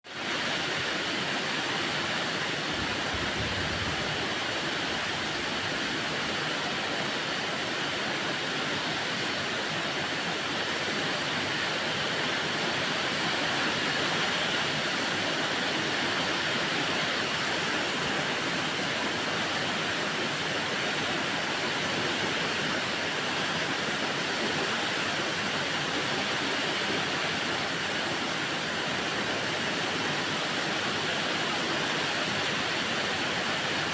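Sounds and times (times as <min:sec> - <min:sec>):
heavy rain pouring: 0:01.4 - 0:08.5.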